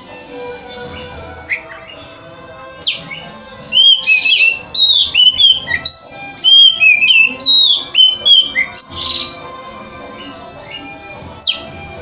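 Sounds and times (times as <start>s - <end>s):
bird song with varied whistles: 0.9s - 2.1s, 2.8s - 9.4s, 10.2s - 12.0s.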